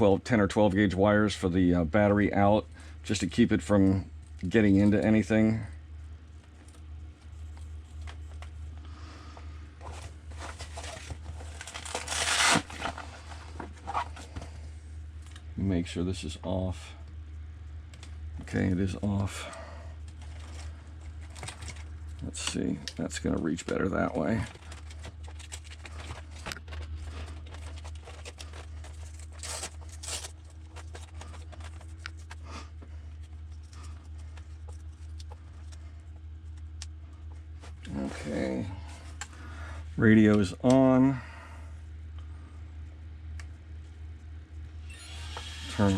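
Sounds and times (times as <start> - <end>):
steady low hum: 0.0 - 45.9
loud ripping rasp: 11.6 - 13.0, 29.1 - 30.3.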